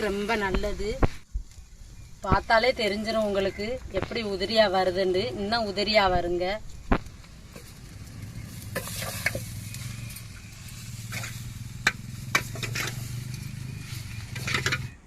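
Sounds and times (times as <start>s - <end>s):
light sizzle: 0.0s - 15.0s
spoon scraping frying pan: 8.6s - 15.0s.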